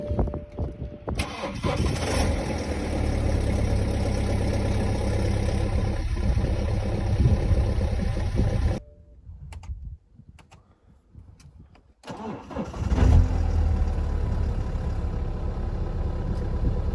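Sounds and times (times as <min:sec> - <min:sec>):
diesel engine cold-starting: 0:01.2 - 0:08.8, 0:12.1 - 0:16.9.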